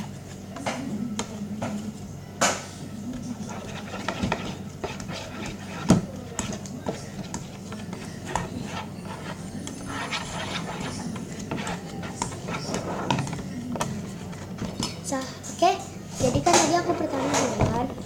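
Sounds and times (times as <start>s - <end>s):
spoon stirring in container: 3.1s - 14.9s.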